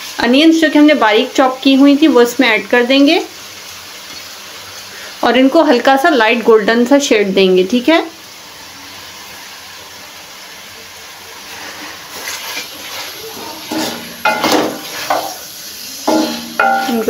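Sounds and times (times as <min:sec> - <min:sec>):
food sizzling in oil: 0:00.0 - 0:17.0
wooden spoon scraping metal pan: 0:11.5 - 0:15.4, 0:16.1 - 0:17.0.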